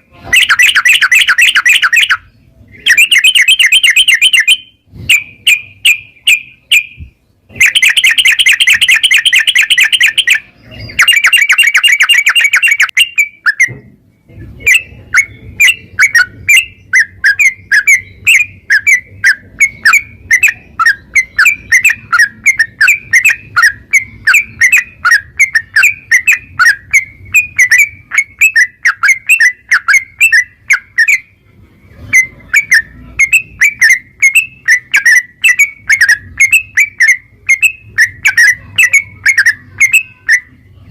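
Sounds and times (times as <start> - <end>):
bird sharp chirps: 0.3 - 13.9, 14.6 - 31.4.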